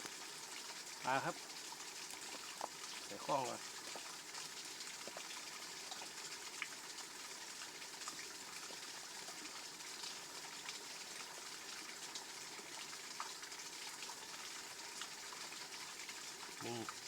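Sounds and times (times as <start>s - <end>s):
light water clicks and splashes: 0.0s - 17.0s
water rushing over waterfall: 3.1s - 3.6s.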